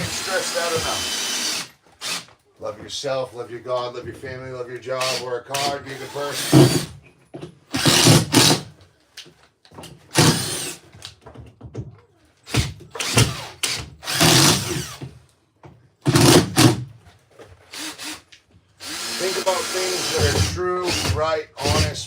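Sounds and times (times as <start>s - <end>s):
harsh construction tool strokes: 0.0s - 2.3s, 5.0s - 6.9s, 17.7s - 18.2s, 18.8s - 22.0s.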